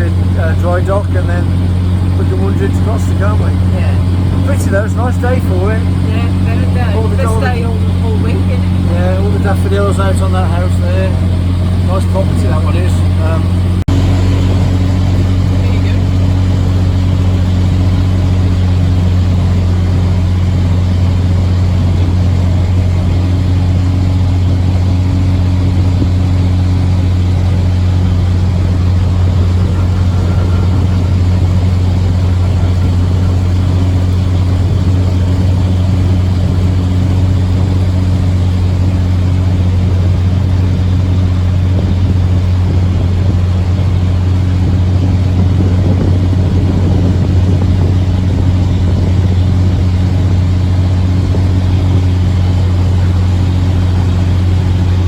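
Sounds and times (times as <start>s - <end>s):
diesel boat engine humming: 0.0s - 55.0s.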